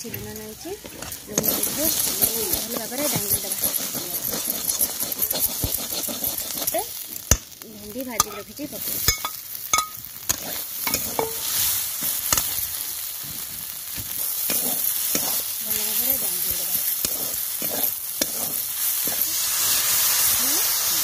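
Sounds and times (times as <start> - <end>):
oil sizzling: 0.0 - 21.0
metal spatula scraping pan: 0.1 - 7.4, 8.1 - 12.6, 14.0 - 19.7.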